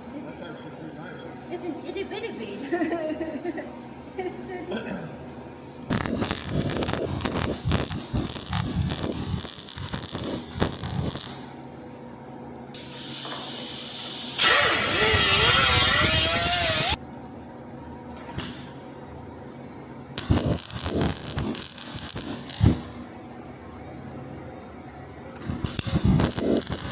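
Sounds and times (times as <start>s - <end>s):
welding arc crackling: 5.9s - 11.5s, 12.8s - 17.0s, 20.2s - 23.2s, 25.4s - 26.9s.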